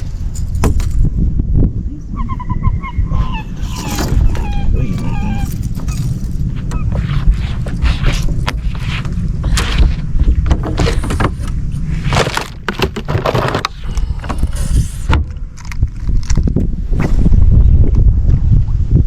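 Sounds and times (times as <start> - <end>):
knocks clicks and rustles: 0.0 - 1.2, 3.6 - 16.7
wind rumbling on microphone: 0.0 - 19.0.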